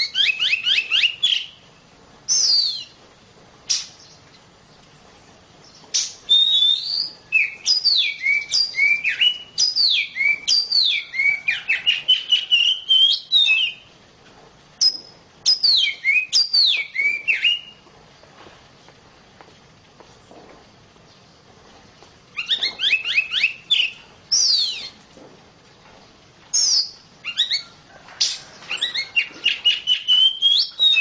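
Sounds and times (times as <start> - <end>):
bird whistling call: 0.0 - 1.6, 2.3 - 3.0, 6.0 - 13.9, 14.8 - 17.8, 22.3 - 25.0, 26.5 - 31.0.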